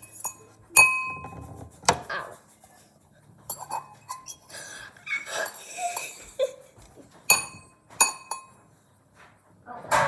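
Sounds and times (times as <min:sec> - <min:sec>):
dishes clinking: 0:00.0 - 0:01.5, 0:03.5 - 0:04.5, 0:07.2 - 0:08.7.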